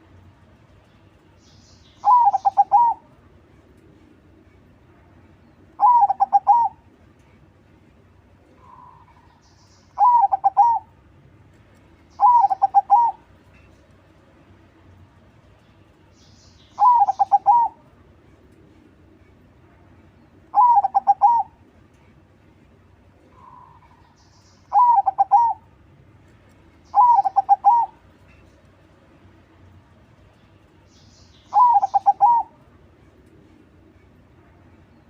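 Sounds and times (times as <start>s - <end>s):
dove cooing: 2.0s - 3.1s, 5.8s - 6.8s, 10.0s - 10.9s, 12.2s - 13.2s, 16.8s - 17.8s, 20.5s - 21.6s, 24.7s - 25.7s, 26.9s - 28.0s, 31.5s - 32.6s.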